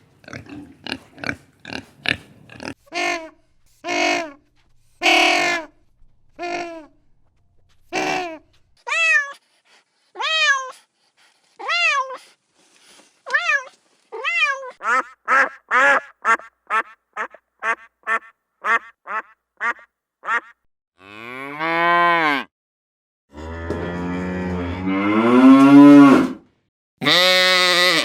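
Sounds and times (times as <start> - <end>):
animal calling in short cries: 6.4 - 6.9, 7.9 - 9.4.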